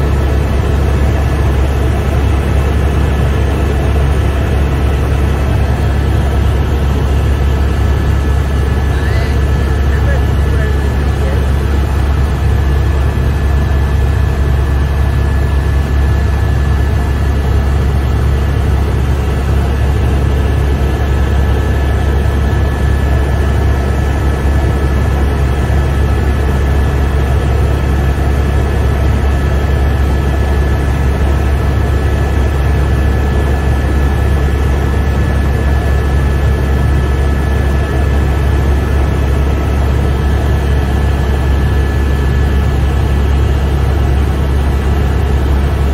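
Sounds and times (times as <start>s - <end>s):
high whine: 0.0s - 19.6s
helicopter cabin drone: 0.0s - 45.9s.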